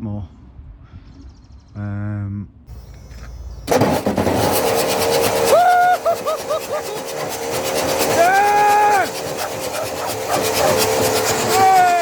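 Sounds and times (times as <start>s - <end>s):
starter motor cranking engine: 2.7s - 12.0s.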